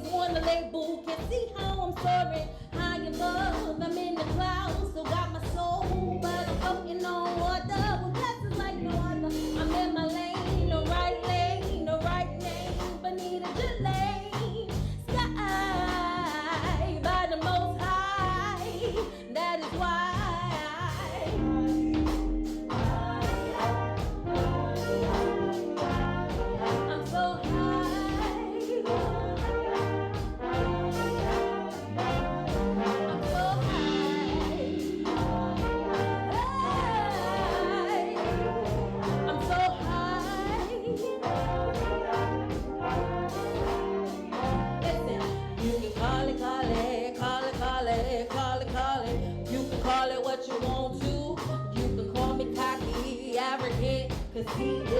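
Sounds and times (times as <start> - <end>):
bass line: 0.0 - 0.6, 1.2 - 54.9
drum beat: 13.6 - 50.0
brass-like lead lines: 20.9 - 46.9.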